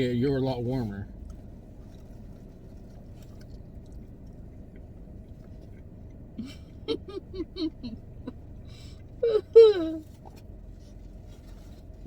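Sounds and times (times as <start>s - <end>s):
low background hum: 0.0s - 12.0s
chewing with wet mouth clicks: 1.2s - 6.4s.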